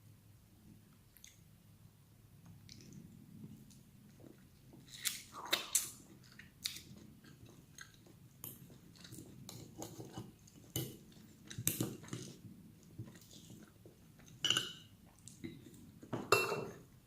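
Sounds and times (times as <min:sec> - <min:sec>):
person chewing food: 0:02.4 - 0:16.1
cutlery clinking on a plate: 0:14.4 - 0:14.9, 0:16.2 - 0:16.8.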